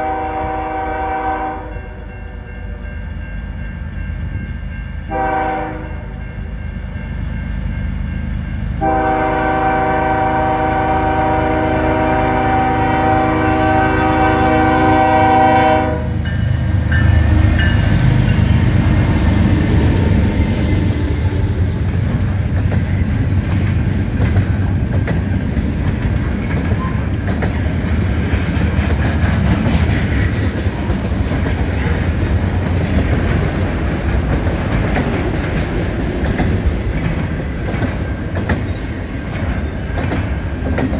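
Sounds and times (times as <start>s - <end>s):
train horn: 0.0s - 2.9s, 5.0s - 6.3s, 8.8s - 16.4s.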